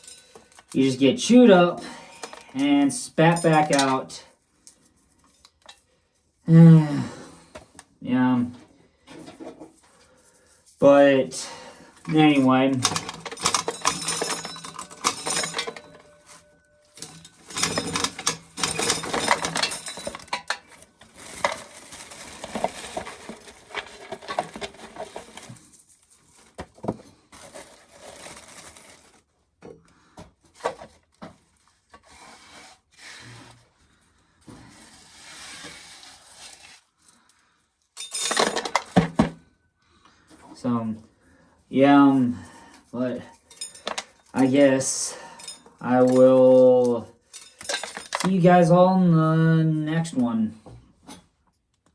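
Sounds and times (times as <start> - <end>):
dry corn clattering: 17.0 - 25.7.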